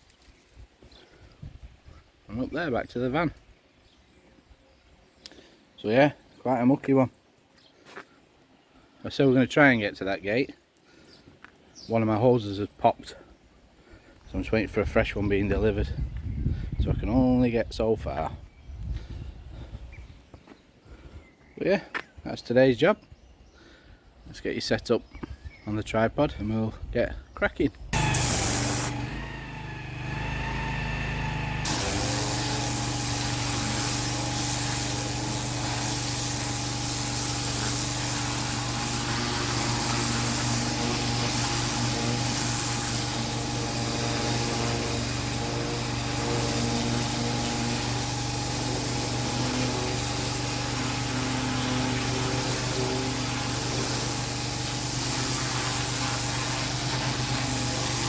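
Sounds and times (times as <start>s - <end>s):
machine hum: 28.0s - 58.0s
pressure washer spray hissing: 28.0s - 58.0s.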